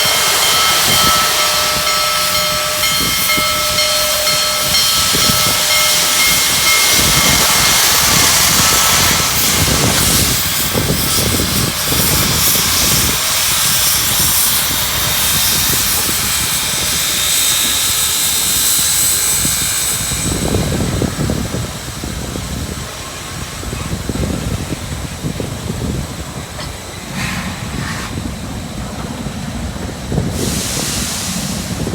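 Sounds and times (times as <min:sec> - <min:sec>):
steam locomotive hissing steam: 0:00.0 - 0:31.9
low uneven rumbling pulses: 0:23.4 - 0:30.8.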